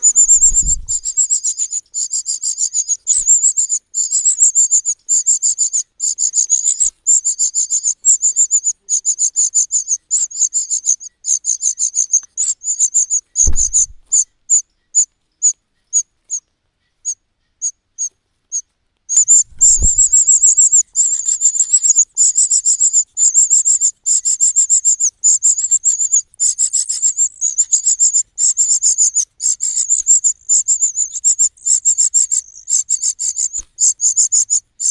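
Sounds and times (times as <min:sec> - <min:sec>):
dull low thumps: 0:00.0 - 0:01.1, 0:13.4 - 0:14.2, 0:19.4 - 0:20.2
cuckoo chick begging calls: 0:00.0 - 0:14.6, 0:18.5 - 0:34.9.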